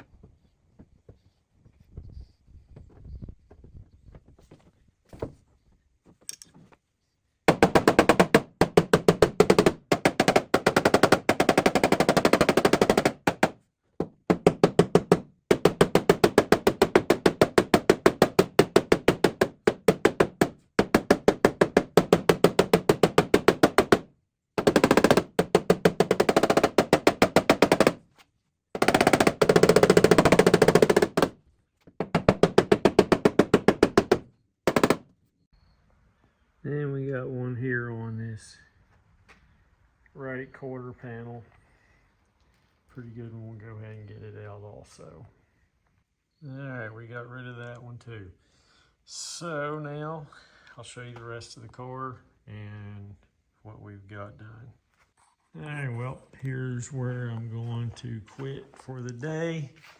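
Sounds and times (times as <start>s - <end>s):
rapid metal-on-metal tapping: 7.5s - 28.0s, 28.8s - 35.0s.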